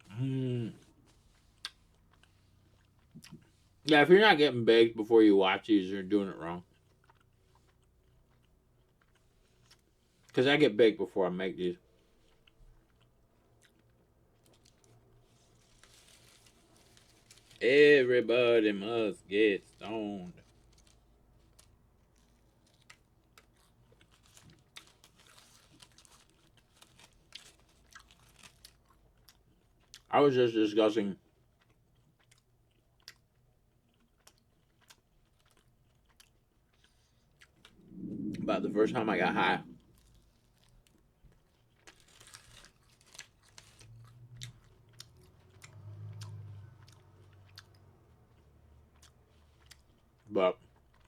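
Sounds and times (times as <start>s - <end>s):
person chewing crunchy food: 0.0s - 3.9s, 6.5s - 10.4s, 11.9s - 17.6s, 19.6s - 30.1s, 31.2s - 51.0s
low hum: 37.6s - 40.1s.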